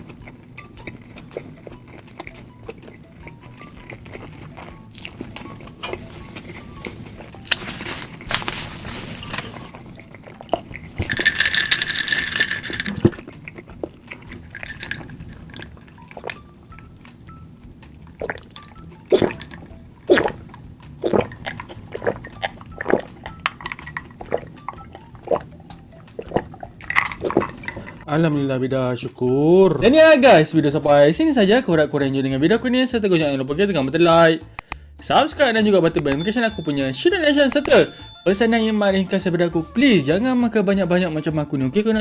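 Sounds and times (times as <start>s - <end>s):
chewing and wet mouth noises: 0.0s - 28.1s.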